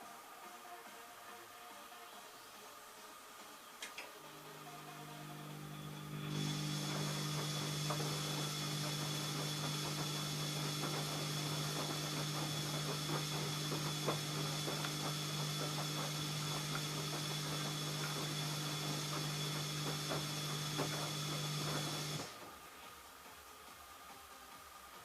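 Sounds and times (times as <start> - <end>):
washing machine motor humming: 4.3 - 22.6.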